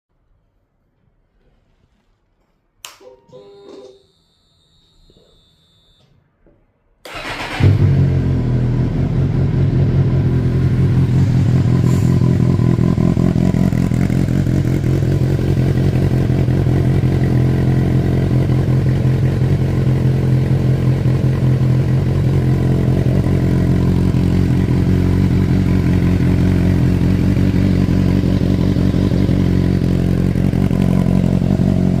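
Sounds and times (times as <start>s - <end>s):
motorcycle engine starting and idling: 7.0s - 32.0s.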